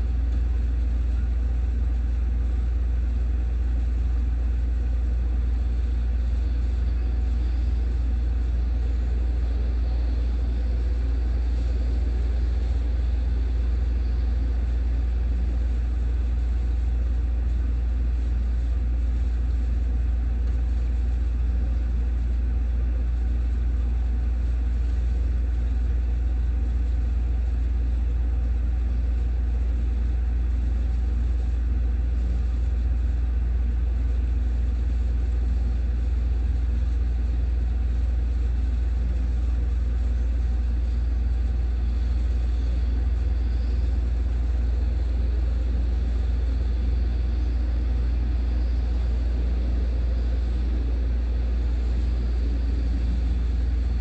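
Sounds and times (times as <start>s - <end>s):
low rumble: 51.8s - 54.0s.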